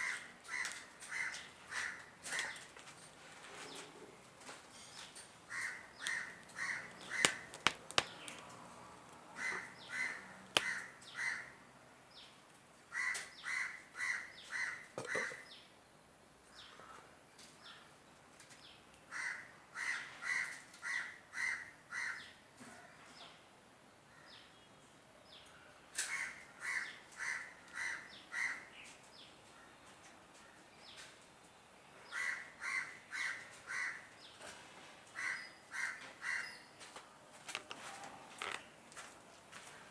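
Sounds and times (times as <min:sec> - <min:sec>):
bird harsh calls: 0:04.8 - 0:08.4
sharp clicks: 0:06.0 - 0:09.2, 0:10.4 - 0:10.8.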